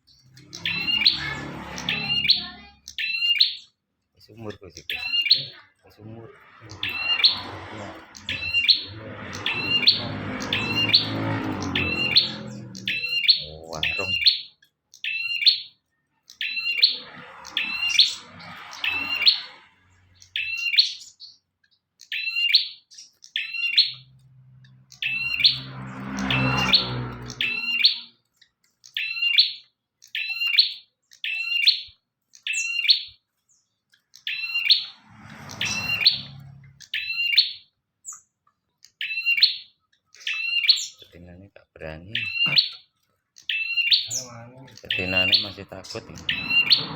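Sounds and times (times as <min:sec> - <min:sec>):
bird chirping: 0:00.0 - 0:46.9
low rumble: 0:34.9 - 0:36.8.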